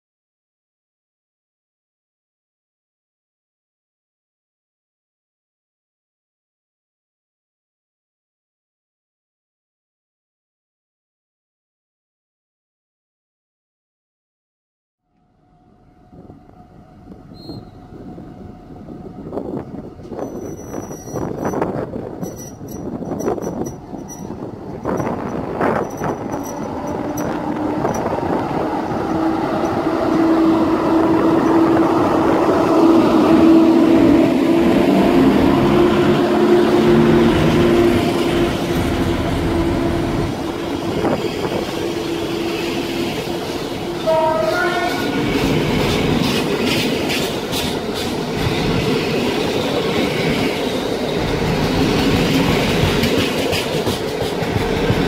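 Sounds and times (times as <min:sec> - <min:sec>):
electric locomotive hum: 0:15.1 - 0:55.0
train wheels clicking over rail joints: 0:20.0 - 0:30.3, 0:45.3 - 0:55.0.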